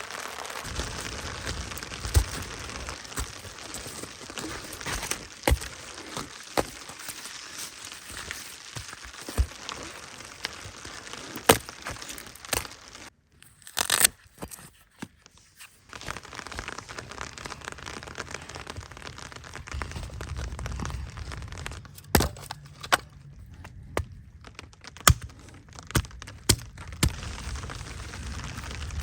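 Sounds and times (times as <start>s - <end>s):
rain hiss: 0.0s - 3.9s
sharp crackles and snaps: 0.0s - 29.0s.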